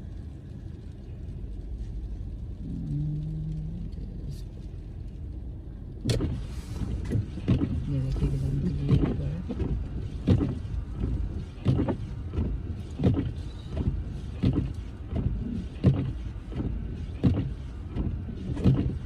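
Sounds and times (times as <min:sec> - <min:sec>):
car driving rumble: 0:00.0 - 0:19.0
windscreen wipers knocking: 0:06.0 - 0:19.0.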